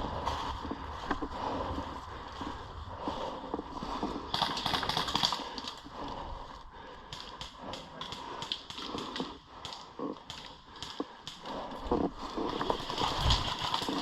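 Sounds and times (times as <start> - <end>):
airsoft gunfire: 4.3 - 5.6.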